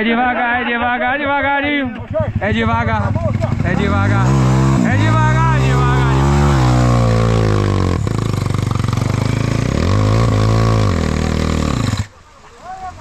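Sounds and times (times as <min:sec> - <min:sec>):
motorcycle engine revving: 0:01.9 - 0:12.2.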